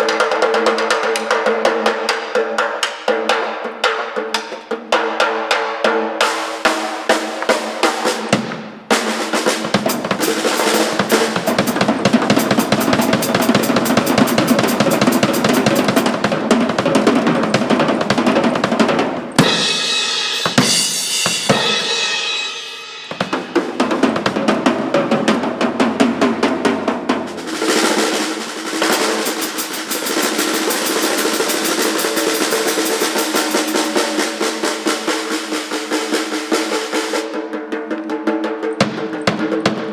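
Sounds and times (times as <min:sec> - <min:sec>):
loud busy drum kit: 0:00.0 - 0:39.9
rock band playing: 0:09.0 - 0:26.1, 0:26.9 - 0:37.2.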